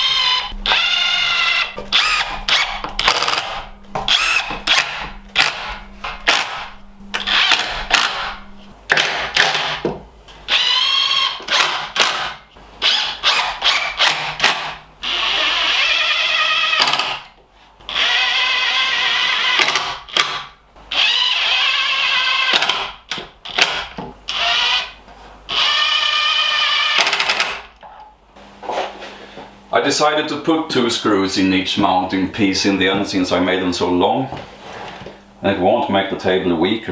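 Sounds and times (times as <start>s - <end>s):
power drill driving screws: 0.0s - 9.8s, 10.4s - 17.3s, 17.9s - 27.7s.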